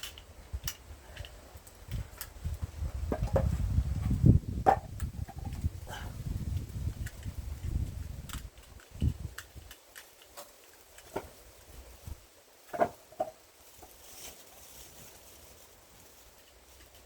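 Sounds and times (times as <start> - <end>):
wood knocking against wood: 3.1 - 3.6, 4.6 - 5.6, 12.7 - 13.4
faint rustling: 5.0 - 17.0.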